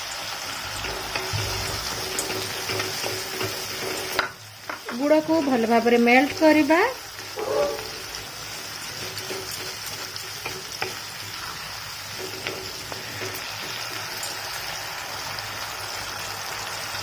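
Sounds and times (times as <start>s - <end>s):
paste sizzling in hot oil: 0.0s - 17.0s
wooden spatula scraping pan: 0.9s - 4.3s, 6.2s - 11.4s
spatula knocking on pan: 9.0s - 11.1s.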